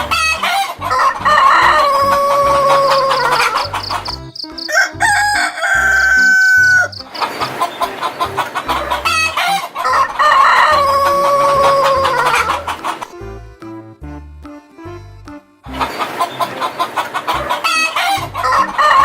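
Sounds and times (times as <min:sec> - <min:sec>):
chickens clucking: 0:00.0 - 0:13.8, 0:15.6 - 0:19.0
rooster crowing: 0:00.4 - 0:04.0, 0:04.6 - 0:07.0, 0:08.7 - 0:12.8, 0:17.3 - 0:19.0.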